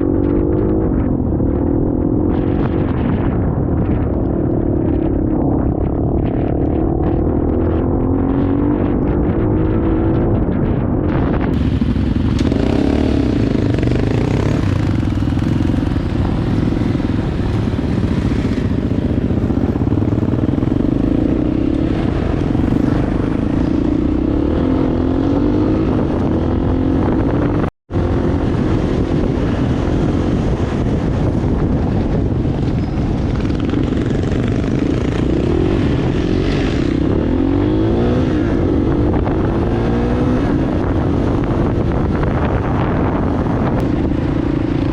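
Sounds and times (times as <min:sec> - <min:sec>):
wind on microphone: 0:00.0 - 0:44.9
motorcycle engine running: 0:11.3 - 0:44.9.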